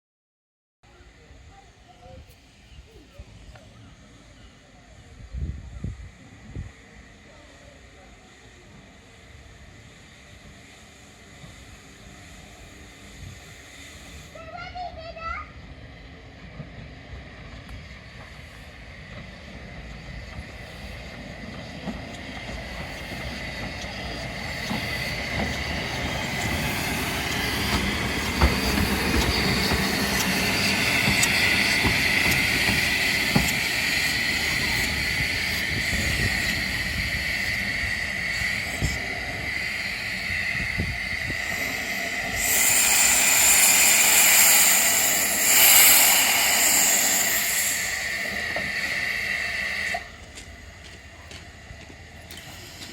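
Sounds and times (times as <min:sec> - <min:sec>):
steam locomotive running slowly: 0:00.9 - 0:52.9
loud hiss of steam: 0:01.2 - 0:52.9
wheels clicking over rail joints: 0:19.1 - 0:37.1, 0:41.2 - 0:52.9
wheel squeal: 0:21.7 - 0:50.1.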